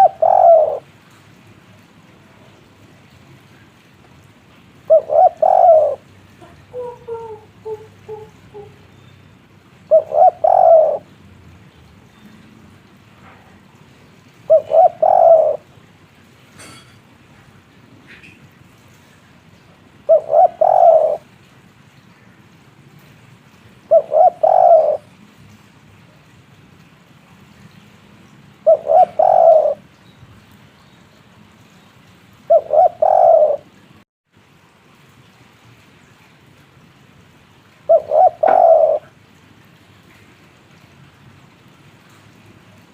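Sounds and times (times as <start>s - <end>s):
dove cooing: 0.0s - 0.9s, 4.9s - 8.9s, 9.9s - 11.1s, 14.5s - 15.7s, 20.1s - 21.3s, 23.9s - 25.1s, 28.6s - 29.8s, 32.5s - 33.8s, 37.9s - 39.2s.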